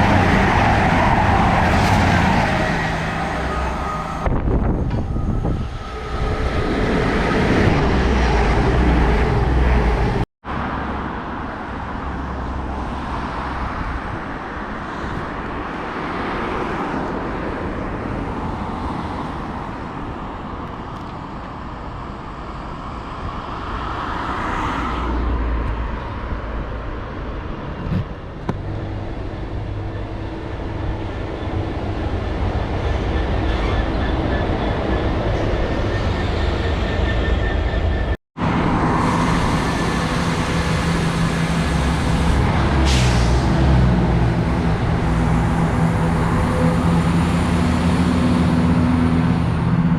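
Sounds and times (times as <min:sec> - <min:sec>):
train wheels rumbling on track: 0:00.0 - 0:10.2, 0:25.7 - 0:49.9.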